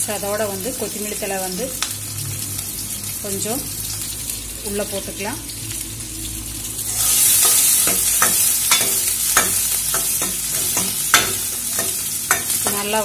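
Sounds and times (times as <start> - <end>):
vegetables sizzling in hot oil: 0.0 - 13.0
steel ladle scraping pan: 6.9 - 13.0.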